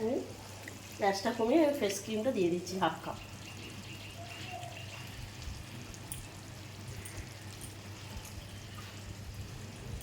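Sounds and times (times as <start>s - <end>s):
curry sizzling in a pan: 0.0s - 10.0s.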